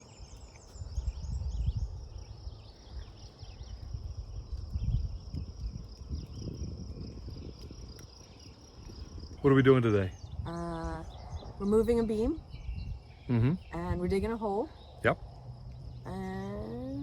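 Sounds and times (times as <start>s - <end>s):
insect chorus: 0.0s - 17.0s
wind rumble on microphone: 0.0s - 17.0s.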